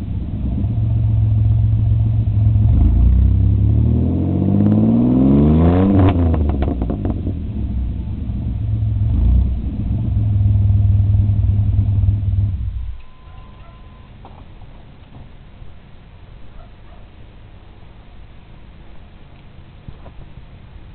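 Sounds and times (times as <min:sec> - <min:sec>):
car engine revving: 0:00.0 - 0:13.0
exhaust crackles: 0:00.0 - 0:13.7.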